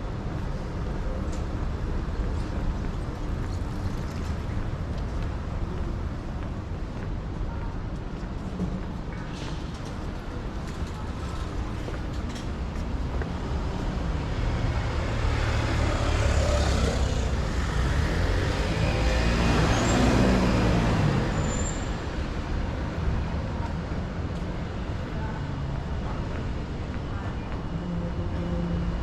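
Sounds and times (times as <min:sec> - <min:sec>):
vehicle passing by: 0:14.2 - 0:21.4.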